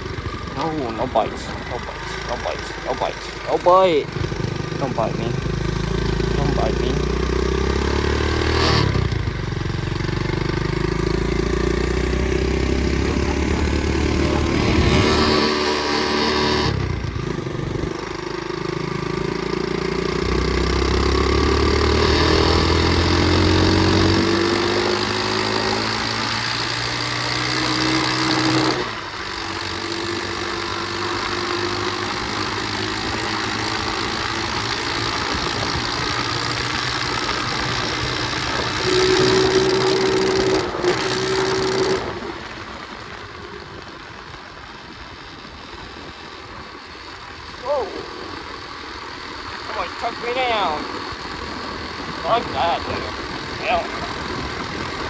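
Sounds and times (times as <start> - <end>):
pit bike engine: 0.0 - 55.0
broad rushing noise: 52.0 - 55.0.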